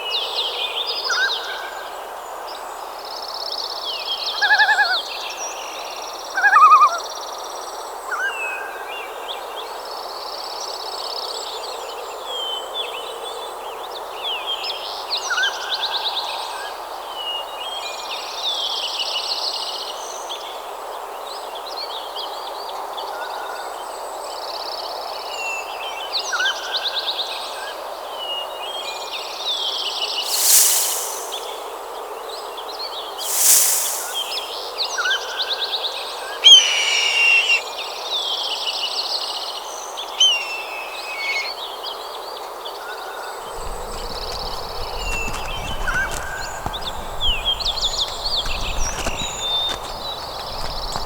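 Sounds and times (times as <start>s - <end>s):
loud rushing swooshes: 30.2s - 31.8s, 33.2s - 34.6s
steady background hiss: 30.2s - 31.8s, 33.2s - 34.7s.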